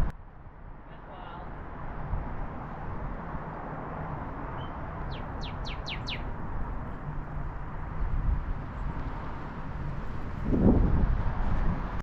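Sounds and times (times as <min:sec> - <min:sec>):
bird singing downslurred whistles: 0:04.6 - 0:06.2.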